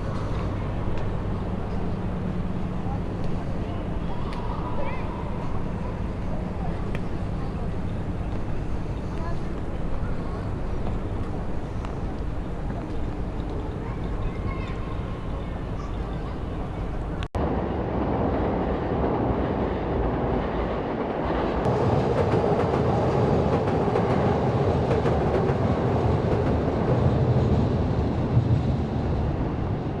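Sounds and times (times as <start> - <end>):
moving vehicle rumble and rattle: 0.0 - 17.4.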